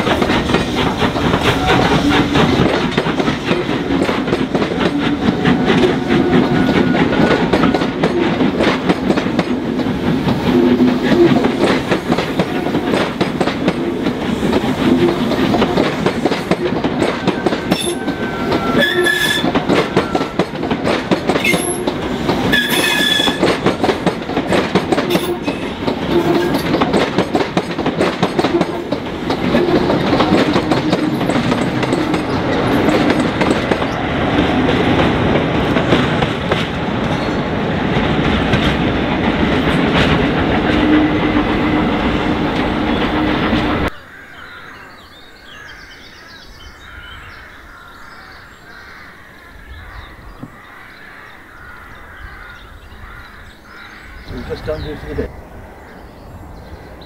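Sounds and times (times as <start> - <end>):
train wheels clattering over rails: 0.0 - 43.9
high-pitched wheel squeals: 17.2 - 20.5, 22.5 - 23.4.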